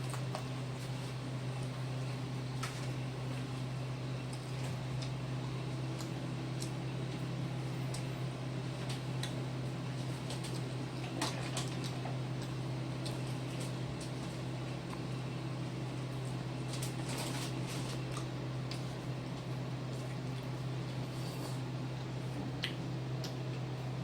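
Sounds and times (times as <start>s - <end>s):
steady low hum: 0.0s - 24.0s
light eating clicks and taps: 4.3s - 5.2s, 6.0s - 6.8s, 7.9s - 8.1s, 8.8s - 9.4s, 22.4s - 23.7s.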